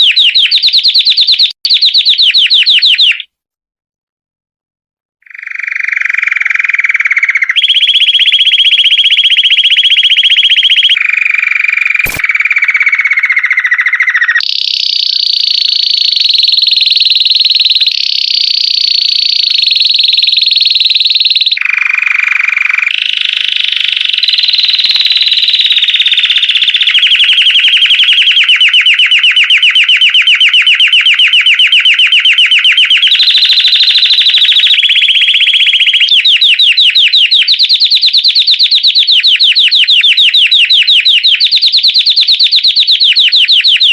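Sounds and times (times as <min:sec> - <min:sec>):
canary singing trills: 0:00.0 - 0:03.3, 0:05.3 - 0:43.9
sharp click: 0:12.0 - 0:12.3.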